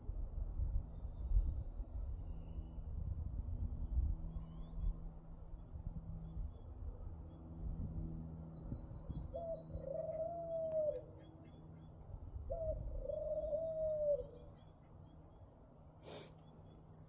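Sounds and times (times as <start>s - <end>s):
small songbirds chirping: 8.2s - 17.0s
bird giving long low calls: 8.8s - 14.9s.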